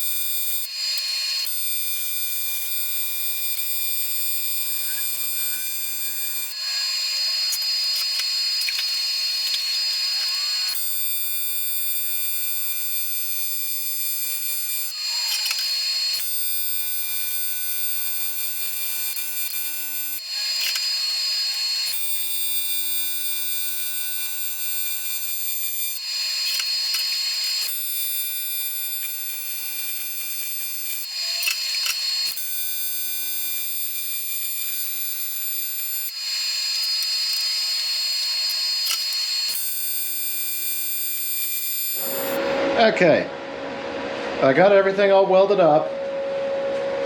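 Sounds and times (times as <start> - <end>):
welding arc buzzing and crackling: 0.0 - 42.4
low hum with high whine: 42.0 - 47.0.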